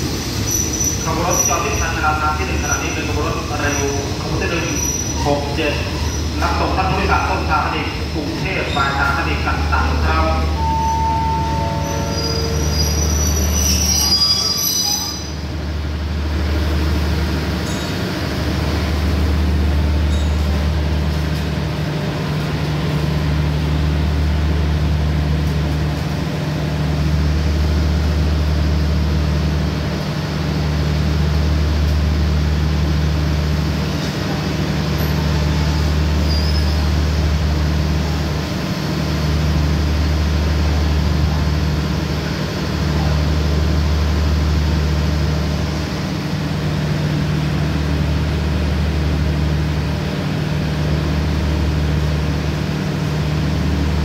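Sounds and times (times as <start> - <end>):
diesel train engine humming: 0.0 - 54.0
high-pitched squeal: 10.5 - 15.4.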